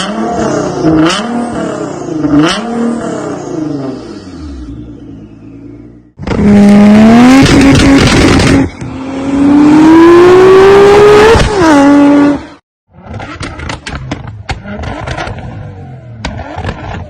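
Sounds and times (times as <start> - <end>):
car engine accelerating hard: 6.3 - 12.5.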